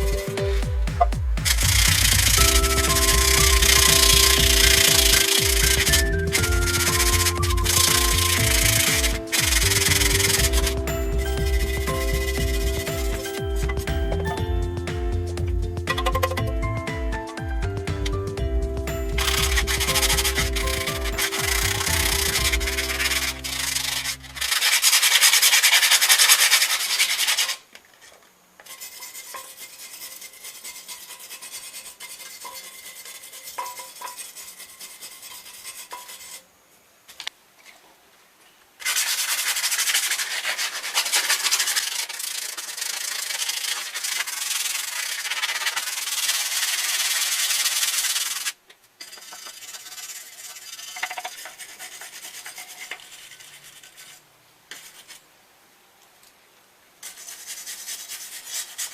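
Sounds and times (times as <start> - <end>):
metal scrubbed with abrasive: 1.6 - 14.8, 19.2 - 36.4, 38.8 - 55.2.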